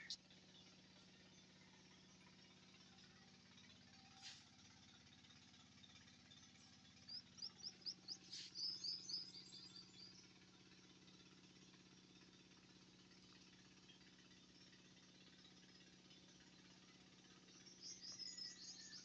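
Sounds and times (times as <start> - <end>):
small bird chirping: 0.0 - 2.1, 6.4 - 10.3, 17.5 - 19.0.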